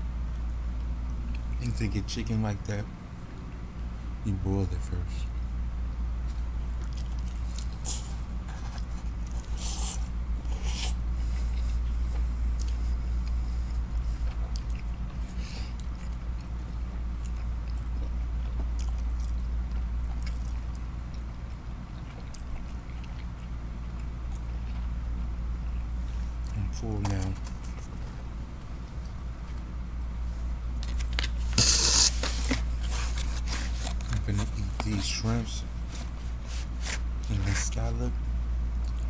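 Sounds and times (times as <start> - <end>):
steady low hum: 0.0 - 39.0
man chewing and lip smacking: 0.3 - 1.6, 6.2 - 9.6, 11.3 - 29.8, 38.7 - 39.0.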